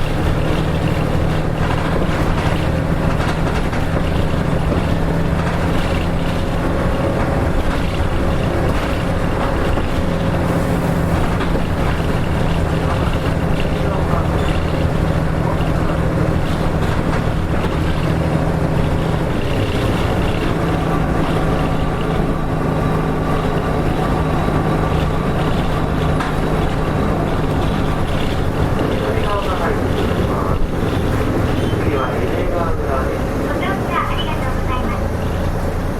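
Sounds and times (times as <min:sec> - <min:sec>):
bus diesel engine drone: 0:00.0 - 0:35.9
road rumble: 0:00.0 - 0:35.9.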